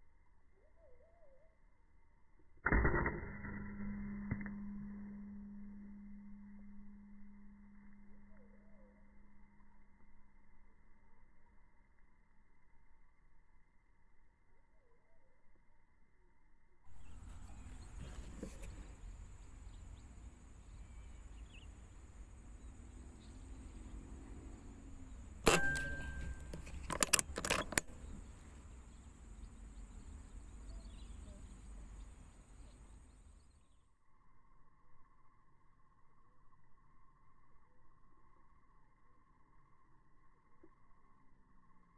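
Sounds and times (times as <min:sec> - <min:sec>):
air rifle shot: 0:25.4 - 0:27.2
rifle bolt clicks: 0:25.5 - 0:27.9.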